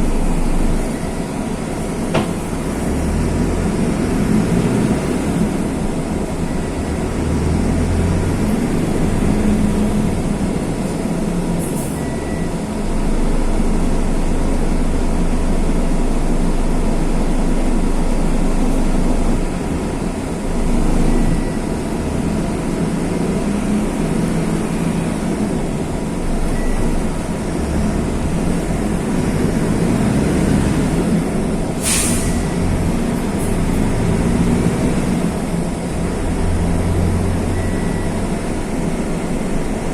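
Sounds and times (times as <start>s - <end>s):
bus diesel engine running: 0.0s - 39.9s
short hiss: 31.8s - 32.4s.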